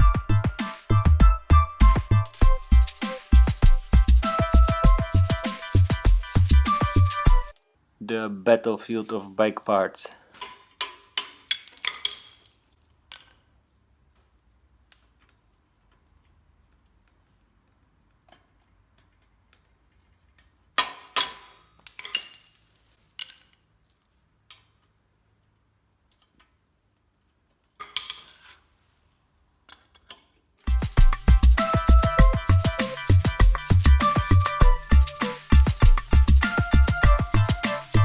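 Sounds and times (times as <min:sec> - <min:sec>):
metal bike parts clinking: 0:10.4 - 0:13.5, 0:18.2 - 0:23.7, 0:27.5 - 0:28.7.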